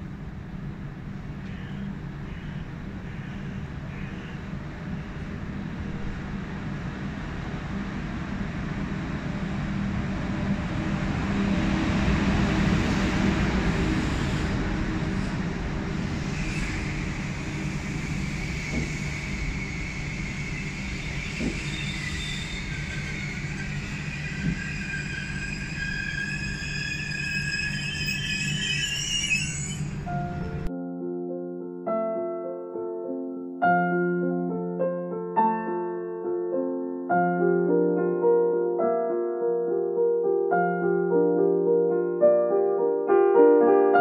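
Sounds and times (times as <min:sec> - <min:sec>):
train rumble: 0:00.0 - 0:30.7
brake squeal: 0:16.1 - 0:30.7.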